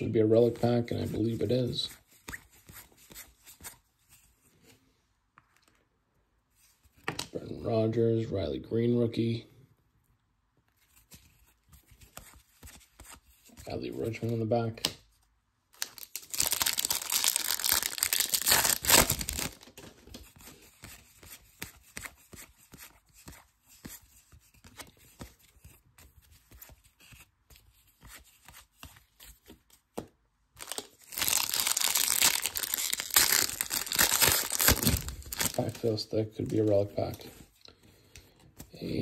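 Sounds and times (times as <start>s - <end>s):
cards clicking and rustling: 10.8s - 15.0s, 15.8s - 37.4s
wrapper tearing and crinkling: 15.8s - 19.8s, 30.6s - 35.9s.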